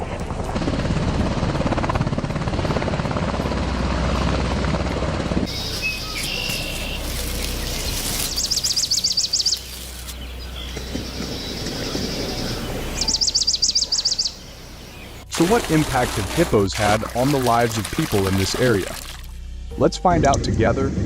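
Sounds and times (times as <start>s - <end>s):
helicopter rotor chop: 0.0s - 18.9s
birds chirping: 5.5s - 18.8s.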